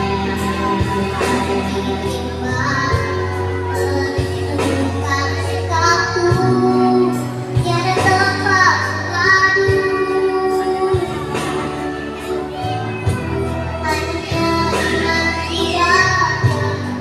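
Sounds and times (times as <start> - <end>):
child singing with vibrato: 0.0 - 17.0
instrumental backing music: 0.0 - 17.0.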